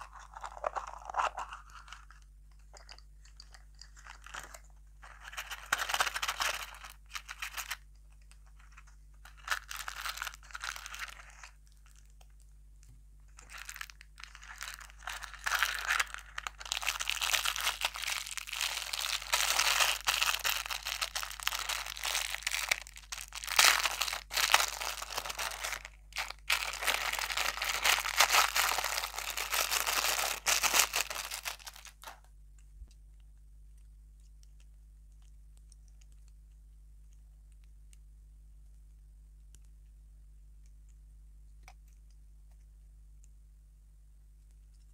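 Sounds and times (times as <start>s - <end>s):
plastic wrapper crinkling and tearing: 0.0s - 12.2s, 13.4s - 32.2s.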